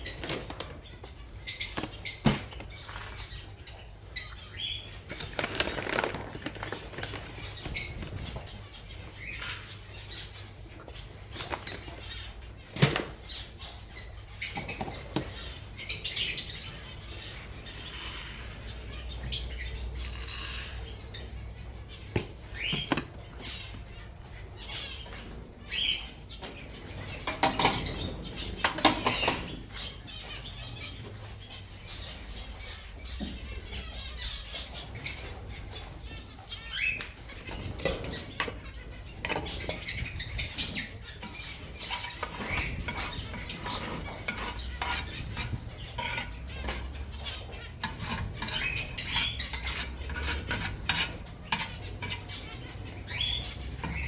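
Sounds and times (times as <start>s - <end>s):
clinks and rattles: 9.4s - 10.0s, 17.6s - 19.2s, 20.0s - 21.5s.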